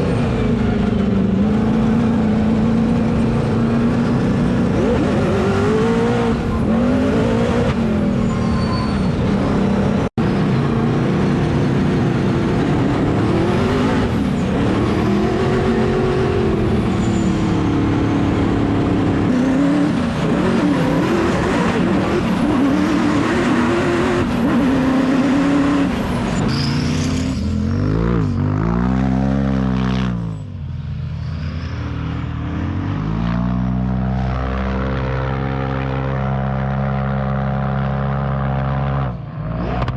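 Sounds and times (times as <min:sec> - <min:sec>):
car engine revving: 0:00.0 - 0:30.3.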